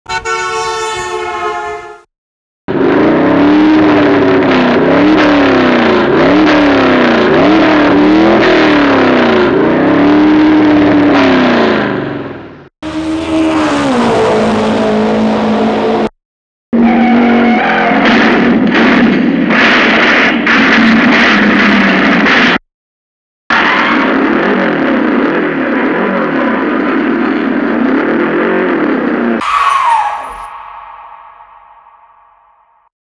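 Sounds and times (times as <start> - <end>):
car engine revving: 12.8 - 16.1.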